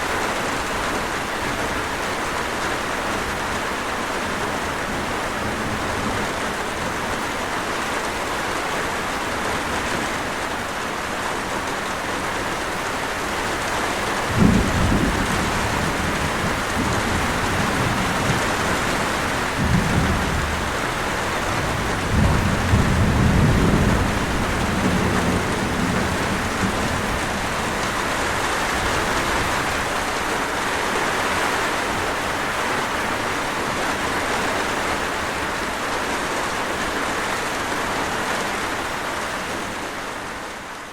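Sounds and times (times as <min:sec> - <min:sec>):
heavy rain hissing: 0:00.0 - 0:40.9
distant thunder rumbling: 0:14.2 - 0:30.2.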